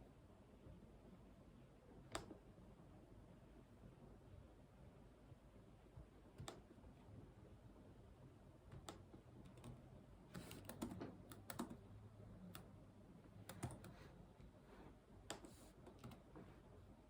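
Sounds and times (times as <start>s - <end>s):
computer keyboard typing: 8.8s - 12.7s, 13.4s - 14.0s, 15.3s - 16.3s.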